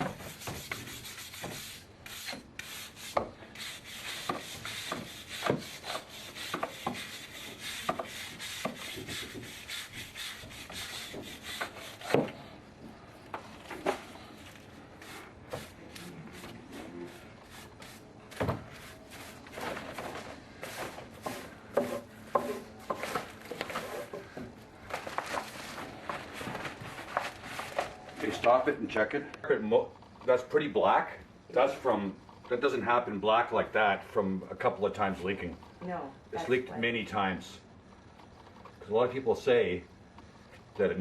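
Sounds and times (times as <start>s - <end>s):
scraping against a hard surface: 18.7s - 28.4s.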